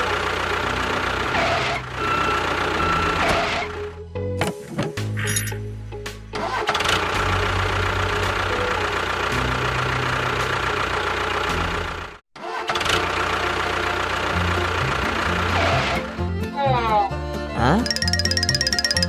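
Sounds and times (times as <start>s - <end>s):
engine running: 0.0s - 4.0s, 6.3s - 16.5s.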